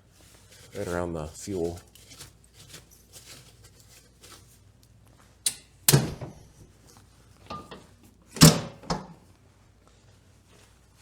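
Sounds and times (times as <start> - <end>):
clunk: 5.5 - 6.7, 7.4 - 9.2.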